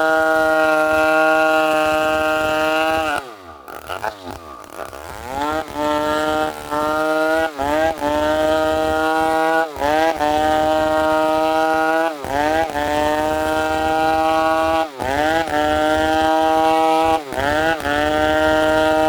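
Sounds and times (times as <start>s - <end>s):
chainsaw revving: 0.0s - 19.0s.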